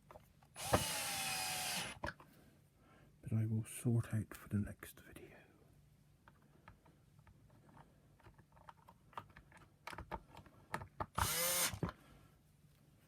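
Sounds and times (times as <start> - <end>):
small power tool whirring: 0.6 - 2.0, 11.2 - 11.9
plastic parts clicking: 7.7 - 12.0.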